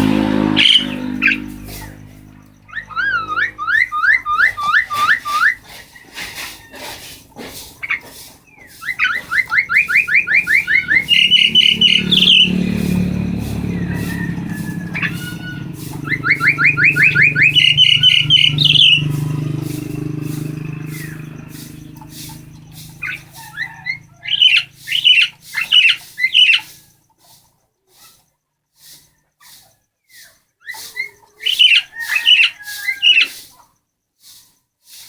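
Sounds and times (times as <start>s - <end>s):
low hum: 0.0s - 4.4s
myna whistling rising notes: 0.0s - 6.1s, 7.9s - 26.6s.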